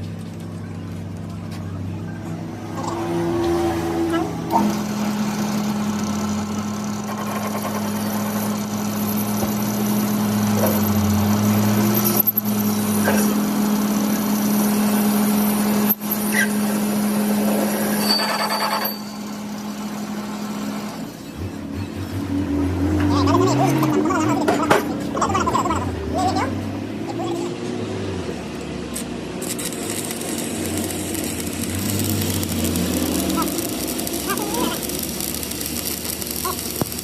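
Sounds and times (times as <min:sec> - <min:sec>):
machine humming and hissing: 0:02.4 - 0:23.1, 0:28.5 - 0:37.0.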